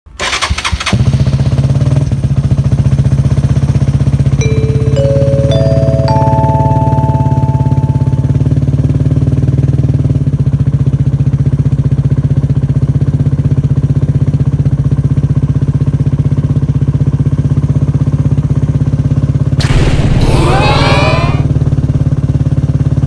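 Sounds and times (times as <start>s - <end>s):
motorcycle engine running: 0.7s - 4.4s, 7.6s - 19.6s, 21.4s - 23.0s.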